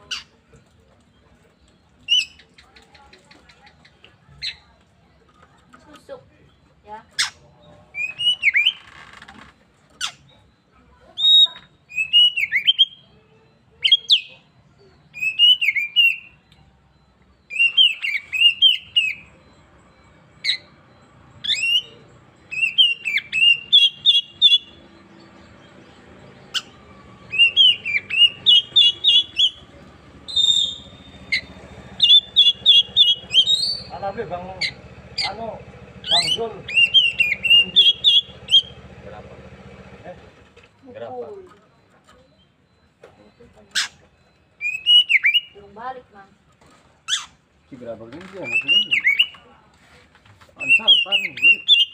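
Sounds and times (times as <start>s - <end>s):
bird singing whistled phrases: 7.9s - 8.8s, 11.2s - 13.2s, 15.1s - 16.6s, 17.4s - 19.6s, 21.4s - 25.4s, 26.2s - 38.8s, 44.6s - 45.7s, 48.4s - 49.5s, 50.6s - 51.9s.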